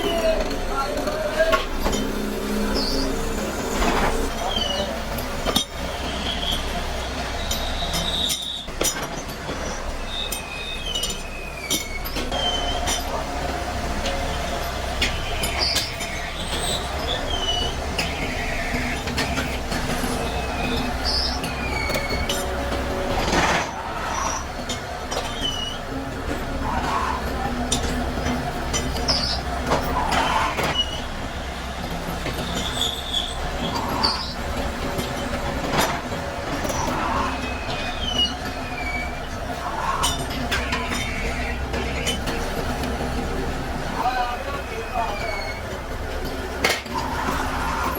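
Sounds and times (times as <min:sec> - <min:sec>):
machinery humming: 0:00.0 - 0:47.9
metal-on-metal squeals: 0:09.6 - 0:13.2, 0:15.1 - 0:25.8, 0:32.4 - 0:42.5, 0:44.8 - 0:45.8
metal on metal squeaks: 0:44.9 - 0:45.7.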